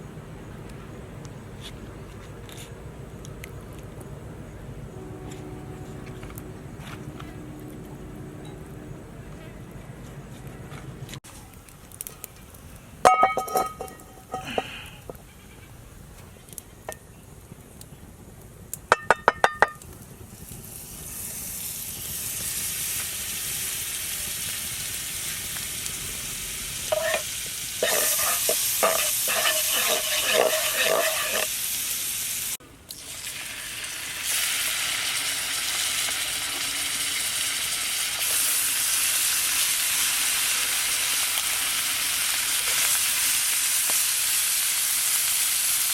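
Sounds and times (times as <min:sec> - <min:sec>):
metal clinks on a pan: 0:13.0 - 0:14.7, 0:18.9 - 0:19.8, 0:26.9 - 0:27.2, 0:27.8 - 0:31.5
food sizzling in hot fat: 0:19.1 - 0:45.9
utensil scraping a pan: 0:26.9 - 0:31.6.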